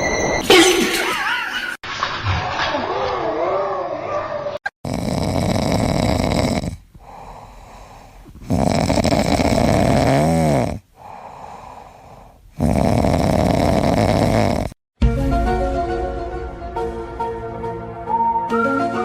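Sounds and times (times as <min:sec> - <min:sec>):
person snoring: 0:04.8 - 0:14.8
quiet breaths: 0:05.0 - 0:14.8.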